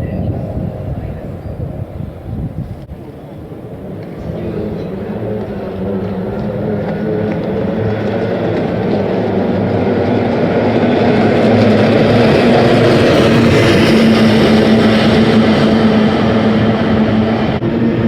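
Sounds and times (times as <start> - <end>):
racing boat outboard engines: 0.0 - 18.0.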